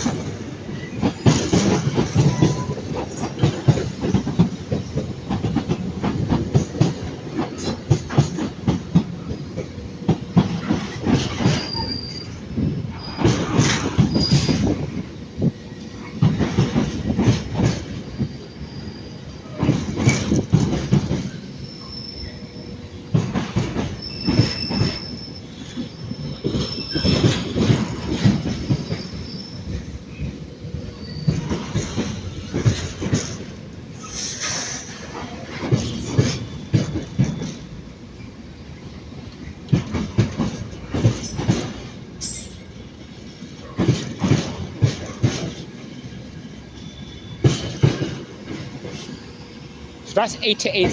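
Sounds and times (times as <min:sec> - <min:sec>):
train wheels clattering: 0:00.0 - 0:38.4, 0:39.1 - 0:50.9
high wheel squeal: 0:11.5 - 0:13.3, 0:18.0 - 0:19.6, 0:21.5 - 0:22.7, 0:24.0 - 0:27.6, 0:28.6 - 0:29.8, 0:31.0 - 0:31.5, 0:46.7 - 0:47.6.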